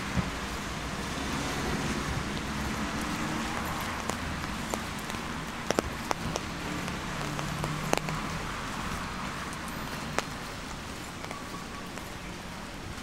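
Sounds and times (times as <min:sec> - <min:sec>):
steady rain falling: 0:00.0 - 0:13.0
sharp taps of raindrops: 0:01.8 - 0:12.2.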